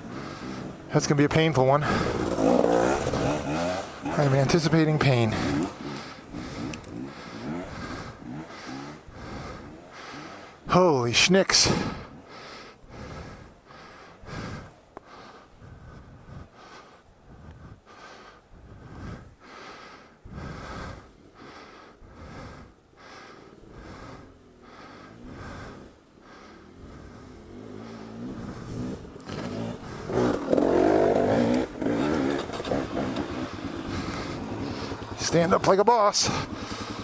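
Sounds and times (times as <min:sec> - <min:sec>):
heavy breathing: 0:00.0 - 0:10.8, 0:11.5 - 0:37.0
motorcycle engine running: 0:00.0 - 0:10.8, 0:22.1 - 0:37.0.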